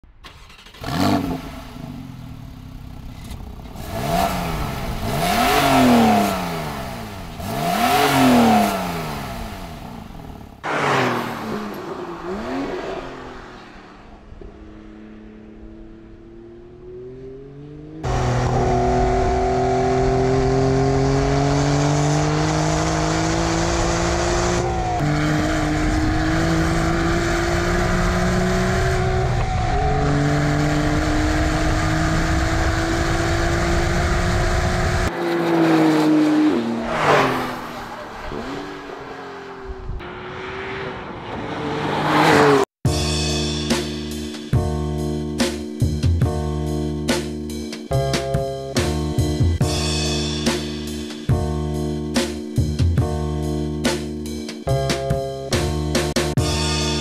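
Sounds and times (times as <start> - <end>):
engine under load with gear changes: 0.0 - 42.7
car engine revving: 0.0 - 42.8.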